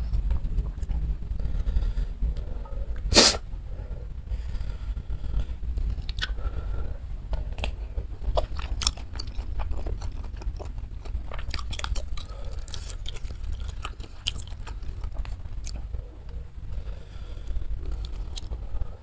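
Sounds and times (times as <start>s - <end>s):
steady low hum: 0.0s - 19.0s
person chewing noodles: 5.4s - 19.0s.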